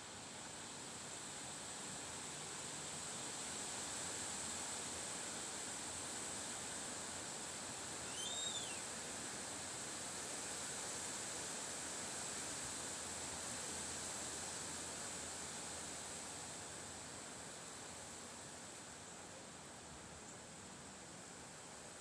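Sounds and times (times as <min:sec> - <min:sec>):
bird chirp: 0:08.1 - 0:08.8.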